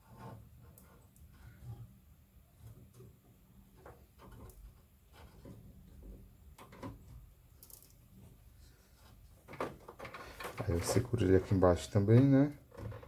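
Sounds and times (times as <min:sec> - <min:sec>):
small plastic clicks and knocks: 0:03.8 - 0:08.0.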